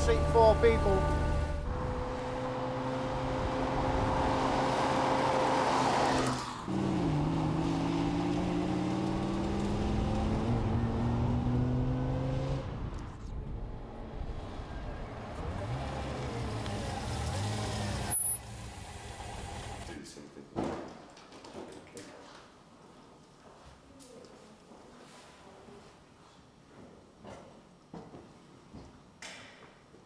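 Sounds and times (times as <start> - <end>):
road and wind noise: 0.0 - 19.9
sports car engine: 0.0 - 19.9.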